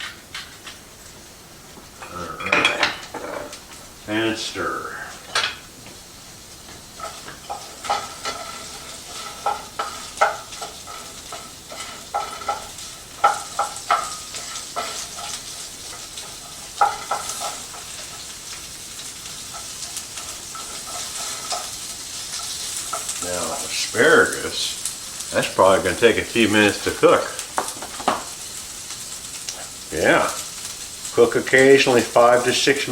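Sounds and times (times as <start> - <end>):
vegetables sizzling in oil: 0.0 - 32.9
utensil scraping a pan: 7.0 - 24.3.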